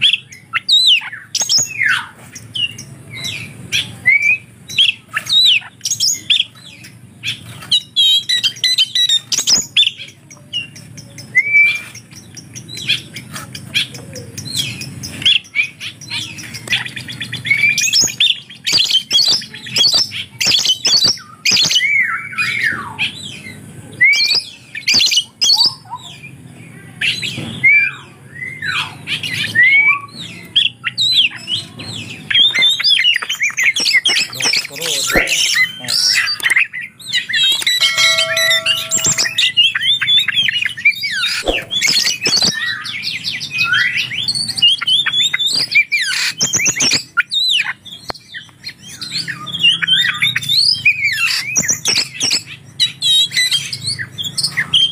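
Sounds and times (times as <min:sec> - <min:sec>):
bird singing varied whistles: 0:11.2 - 0:12.0, 0:37.1 - 0:48.5.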